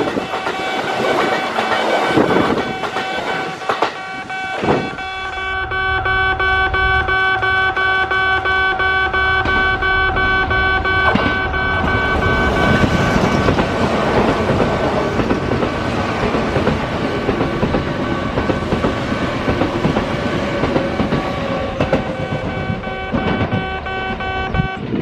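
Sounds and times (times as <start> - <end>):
train wheel and rail noise: 0.0 - 25.0
steady held tones: 16.9 - 20.1.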